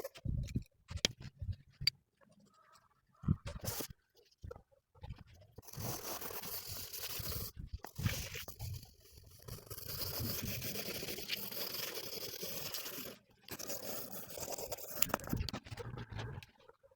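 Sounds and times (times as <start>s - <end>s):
drawing tool scratching paper: 5.6s - 15.5s.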